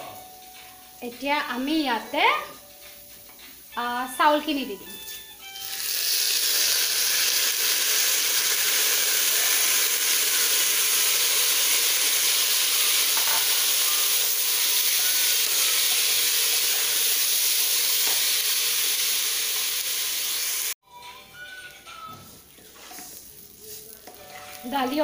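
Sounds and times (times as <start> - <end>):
food sizzling in hot oil: 2.7 - 20.8, 22.6 - 25.0
wooden spatula stirring: 21.9 - 25.0.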